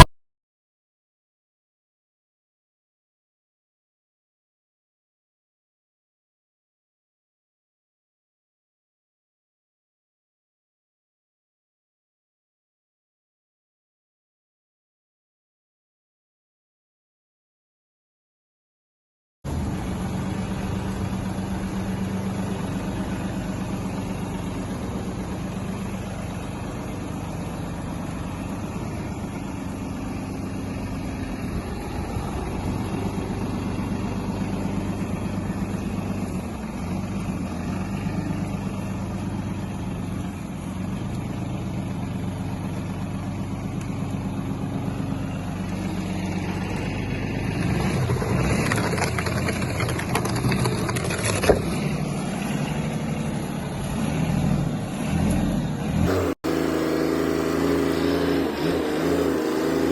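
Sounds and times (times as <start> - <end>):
tractor engine idling: 19.5 - 58.0.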